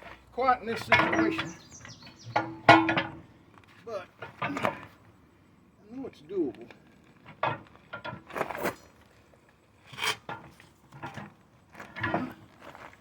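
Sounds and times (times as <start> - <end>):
metal tools scraping tire: 9.8 - 12.8.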